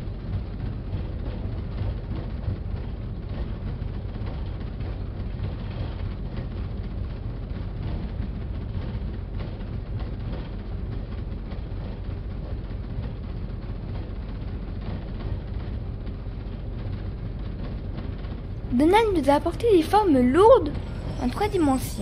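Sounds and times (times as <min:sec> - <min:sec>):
train rumbling and rattling: 0:00.0 - 0:22.0.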